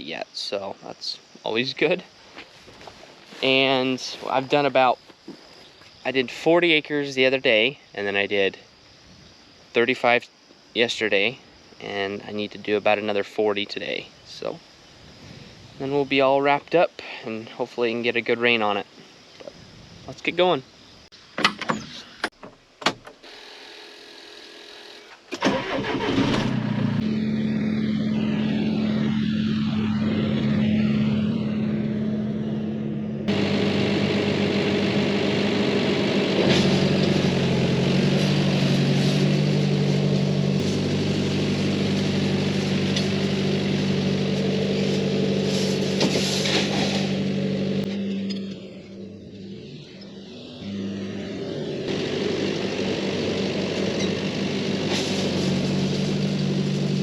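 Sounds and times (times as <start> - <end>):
tractor engine running: 25.4 - 57.0.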